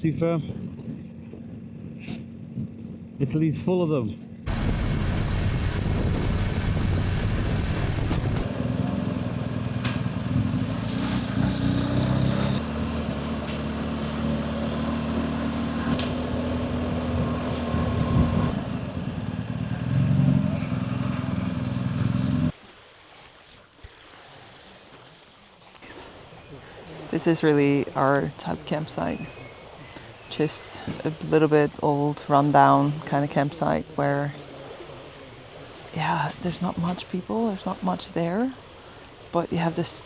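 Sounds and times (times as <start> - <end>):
motorcycle engine running: 4.5 - 22.5.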